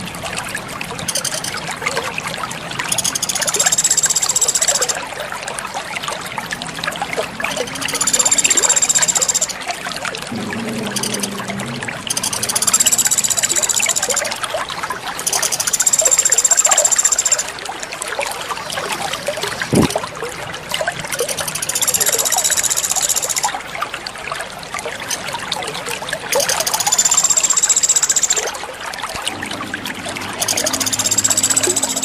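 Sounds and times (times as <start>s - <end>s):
water trickling: 0.0s - 32.0s
water plop: 6.8s - 20.1s.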